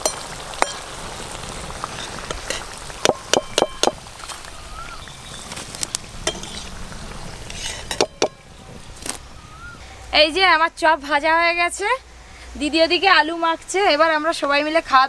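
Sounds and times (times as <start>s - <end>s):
food sizzling in hot oil: 0.0s - 9.4s
metal spoon clinking against wok: 7.6s - 8.4s.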